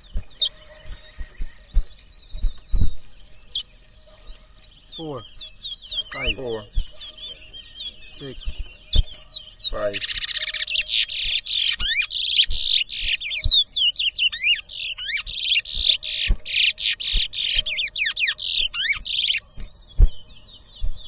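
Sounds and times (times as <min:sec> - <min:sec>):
finch singing trills and whistles: 0:00.0 - 0:21.0
low thumps: 0:08.2 - 0:09.3, 0:19.6 - 0:21.0.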